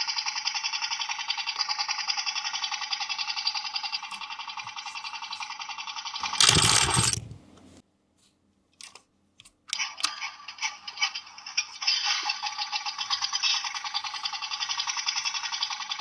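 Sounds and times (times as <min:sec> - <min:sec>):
toy motor whirring: 0:06.2 - 0:07.4, 0:09.8 - 0:16.0
clicks: 0:06.2 - 0:07.8.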